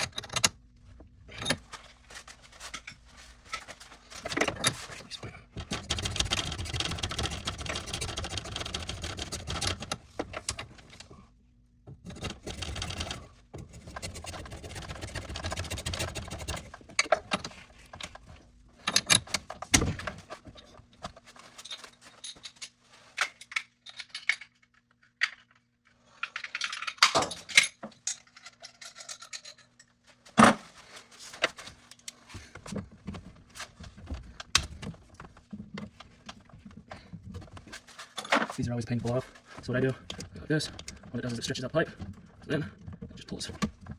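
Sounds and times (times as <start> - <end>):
tool scraping on pipe: 12.1 - 16.8
metal tools clicking and knocking: 26.4 - 29.9.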